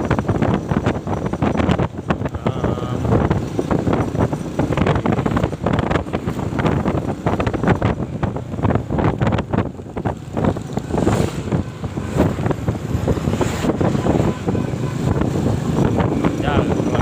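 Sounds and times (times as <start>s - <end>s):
motorcycle noise: 0.0s - 17.0s
wind buffeting microphone: 0.0s - 17.0s.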